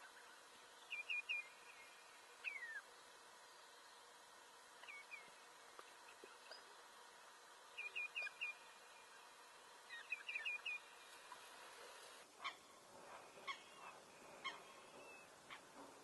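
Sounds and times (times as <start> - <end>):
faint high bird chirps: 0.0 - 2.9, 7.7 - 9.3, 9.9 - 11.4.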